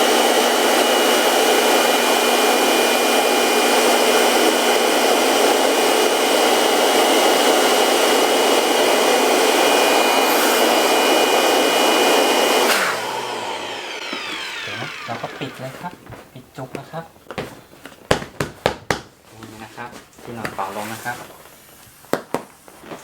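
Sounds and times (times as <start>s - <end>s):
electric blower rushing air: 0.0s - 16.0s
high motor whine: 8.6s - 15.8s.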